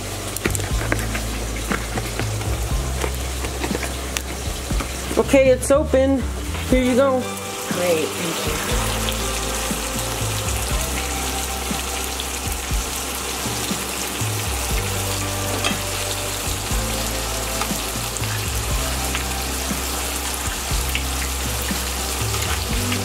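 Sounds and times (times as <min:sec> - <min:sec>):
low background music: 0:00.0 - 0:23.0
meat sizzling in a pan: 0:07.2 - 0:23.0.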